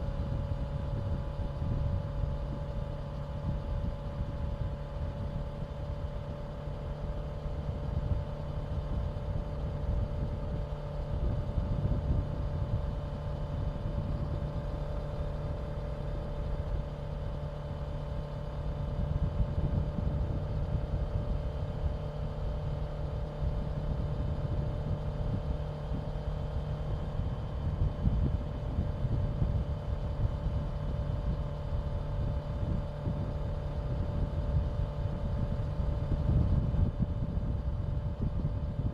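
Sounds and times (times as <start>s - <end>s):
rushing wind noise: 23.4s - 38.9s.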